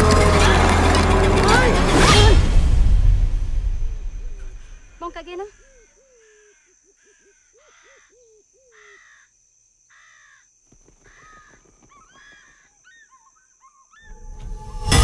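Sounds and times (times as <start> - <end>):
harsh bird caws: 5.3 - 14.1.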